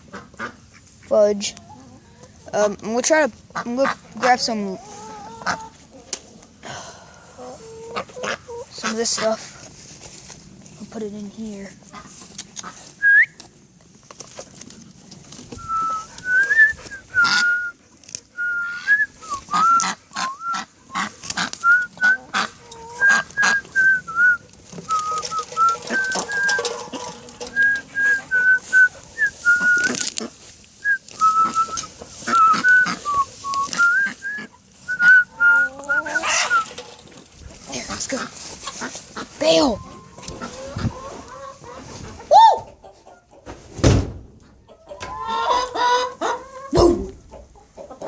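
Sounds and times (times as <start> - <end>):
person whistling: 13.0 - 13.4, 15.6 - 17.7, 18.4 - 19.8, 23.4 - 26.6, 27.5 - 30.0, 30.8 - 36.6
handling clicks and knocks: 24.6 - 28.4.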